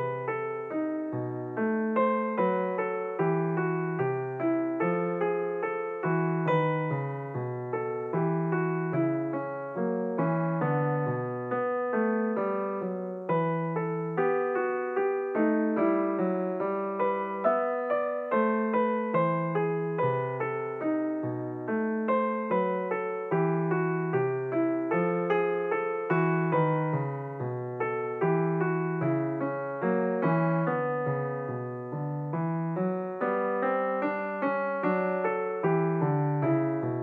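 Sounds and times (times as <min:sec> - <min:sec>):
solo piano playing: 0:00.0 - 0:37.0.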